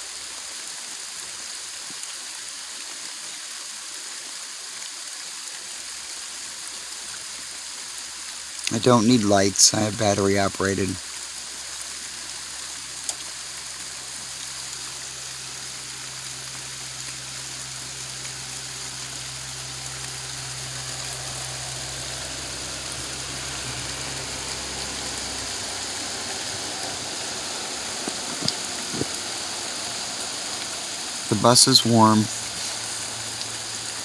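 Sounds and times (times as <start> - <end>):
steady rain falling: 0.0 - 34.0
low steady hum: 12.1 - 34.0.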